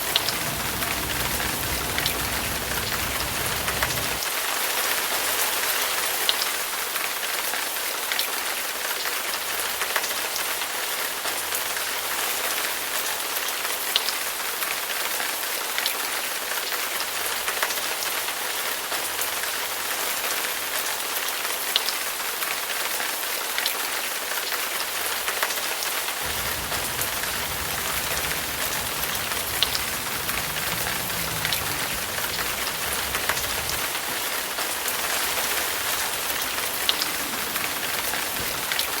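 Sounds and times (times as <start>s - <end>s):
low rumble: 0.0s - 4.2s, 26.3s - 34.6s
raindrop ticks: 0.0s - 4.2s, 26.3s - 39.0s
rain hiss: 0.0s - 39.0s.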